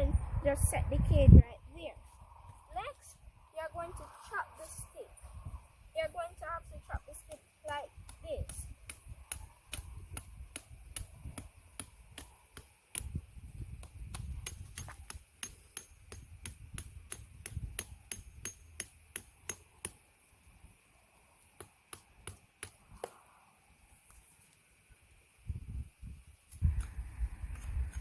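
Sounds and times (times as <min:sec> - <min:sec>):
blade chopping wooden stick: 0:07.7 - 0:13.2, 0:13.8 - 0:20.0.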